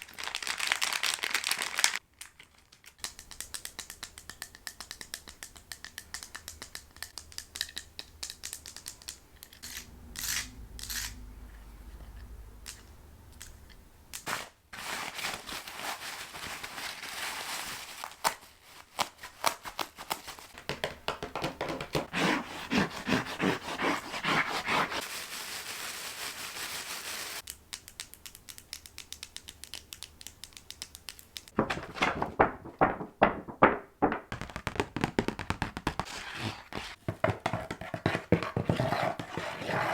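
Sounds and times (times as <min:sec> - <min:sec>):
crinkling: 0:00.0 - 0:11.0, 0:12.1 - 0:39.6
scratching on objects: 0:19.0 - 0:27.5, 0:31.4 - 0:39.9
clicking on objects: 0:27.4 - 0:32.9
tapping on objects: 0:30.7 - 0:36.1.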